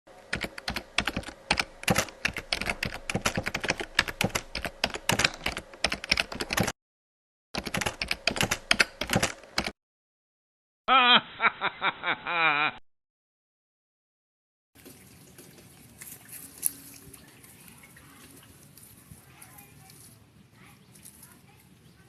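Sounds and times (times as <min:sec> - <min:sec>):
rapid keyboard typing: 0:00.3 - 0:06.8, 0:07.6 - 0:09.8.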